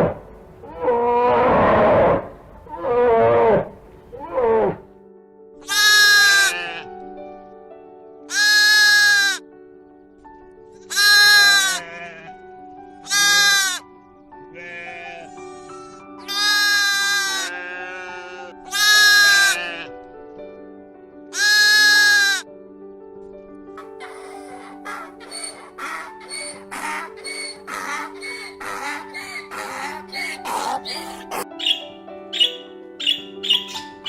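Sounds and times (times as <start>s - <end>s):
background music: 0.0s - 34.0s
sheep or goat bleating: 5.6s - 6.9s, 8.3s - 9.4s, 10.9s - 12.3s, 13.0s - 13.8s, 14.5s - 19.9s, 21.3s - 22.4s.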